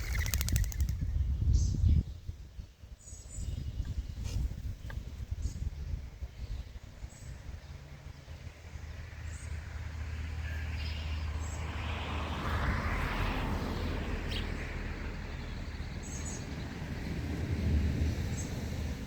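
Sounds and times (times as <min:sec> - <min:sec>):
high bird chirps: 0:00.0 - 0:01.6
vehicle passing: 0:07.7 - 0:19.0.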